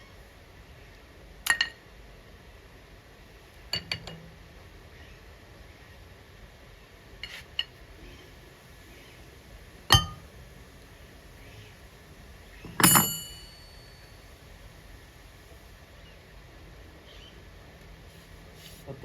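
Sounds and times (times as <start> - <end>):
metal parts clinking: 12.7 - 14.0.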